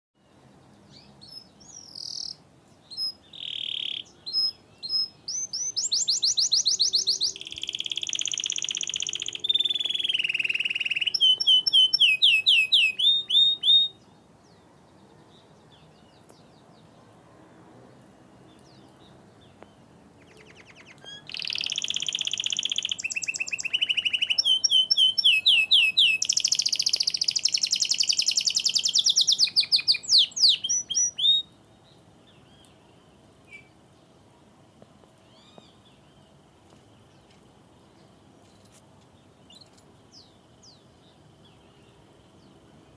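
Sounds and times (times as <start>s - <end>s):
canary singing: 0.9s - 14.0s, 20.2s - 31.6s.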